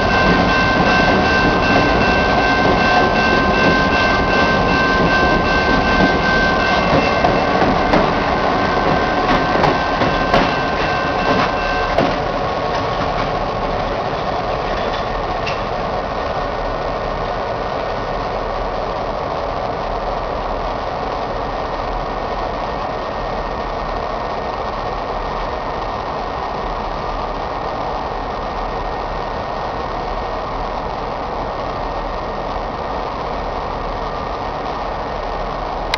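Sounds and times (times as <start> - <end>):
high steady ringing: 0.0 - 16.0
locomotive engine rumble: 0.0 - 26.0
sharp clanks: 0.1 - 13.4.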